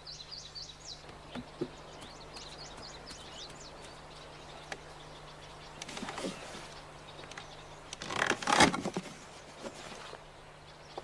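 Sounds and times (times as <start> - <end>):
steady low hum: 0.0 - 8.0
small birds chirping: 0.0 - 11.0.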